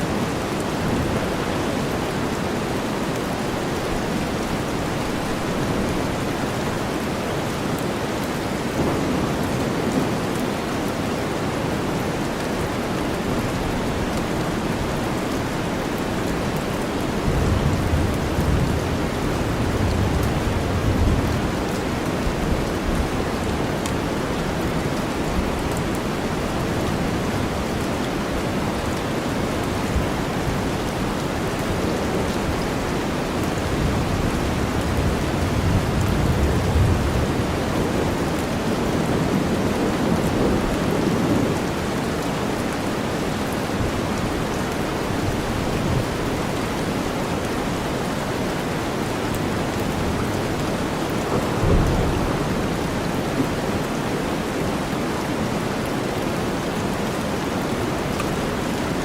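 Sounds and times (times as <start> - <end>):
steady rain: 0.0 - 59.0
low thunder rumbles: 32.0 - 42.0, 49.6 - 55.0.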